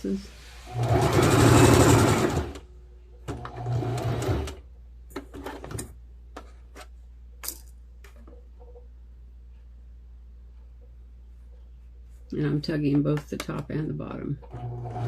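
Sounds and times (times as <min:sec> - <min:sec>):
electric sewing machine stitching: 0:00.6 - 0:02.6, 0:03.3 - 0:04.6, 0:14.4 - 0:15.0.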